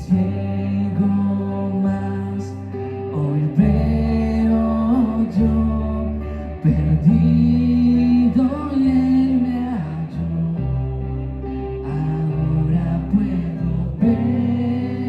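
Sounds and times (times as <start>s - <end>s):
steady bass: 0.0s - 15.0s
worship band playing slow song: 0.0s - 15.0s
person singing long held notes: 11.8s - 15.0s.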